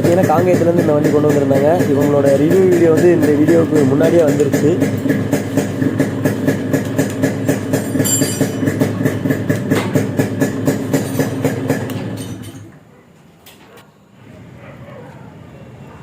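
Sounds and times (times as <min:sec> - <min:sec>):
two-stroke engine idling: 0:00.0 - 0:12.7.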